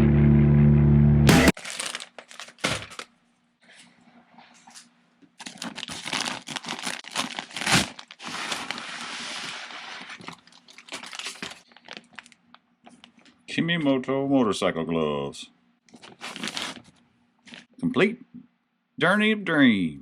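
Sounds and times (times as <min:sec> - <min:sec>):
plastic packaging crinkling: 0:01.5 - 0:03.2, 0:05.4 - 0:13.3, 0:15.9 - 0:17.7.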